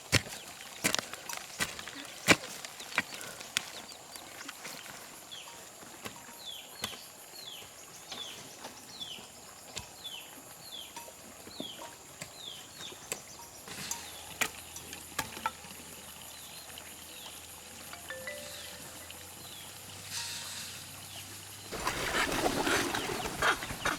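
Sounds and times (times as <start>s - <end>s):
bird calling high falling notes: 18.0s - 19.5s.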